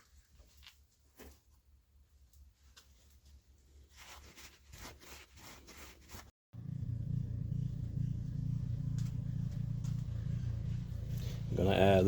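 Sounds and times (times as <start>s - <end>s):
steady low hum: 6.6s - 12.0s.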